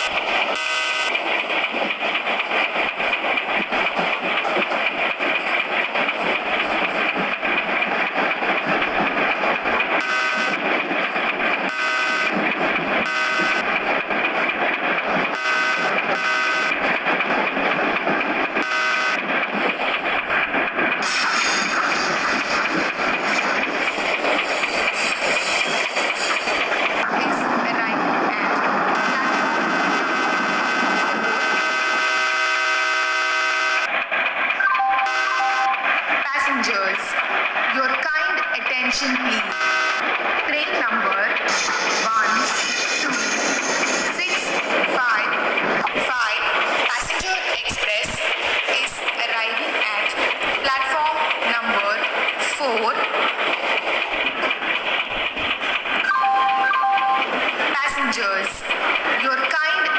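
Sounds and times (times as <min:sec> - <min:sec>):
train running: 0:00.0 - 0:59.9
short train horn blasts: 0:00.6 - 0:01.1, 0:10.0 - 0:10.5, 0:11.7 - 0:12.3, 0:15.4 - 0:16.7, 0:18.6 - 0:19.2, 0:35.0 - 0:35.7, 0:39.5 - 0:40.0.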